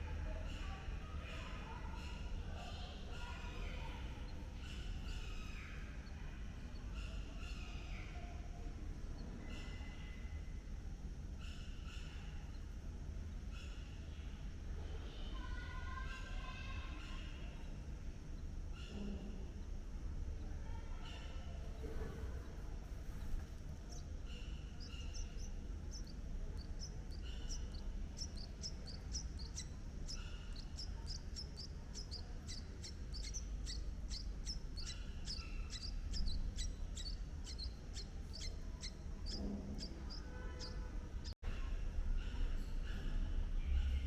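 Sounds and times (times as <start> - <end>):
bird chirping: 0.3 - 10.7, 23.0 - 44.0
steady low rumble: 16.8 - 44.0.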